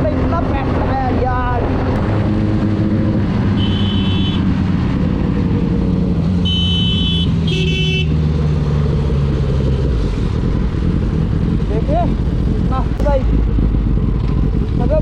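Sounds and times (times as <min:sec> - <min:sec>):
motorcycle engine running: 0:00.0 - 0:15.0
vehicle horn honks: 0:03.6 - 0:04.5, 0:06.4 - 0:08.2.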